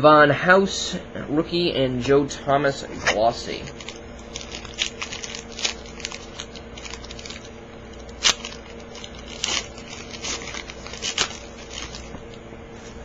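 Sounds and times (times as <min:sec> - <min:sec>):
plastic wrapper crinkling: 0:03.6 - 0:12.4.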